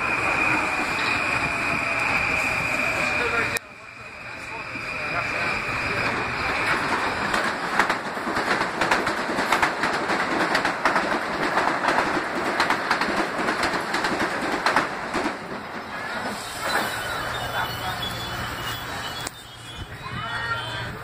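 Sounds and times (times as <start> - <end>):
train wheels clicking on rails: 5.3 - 17.8.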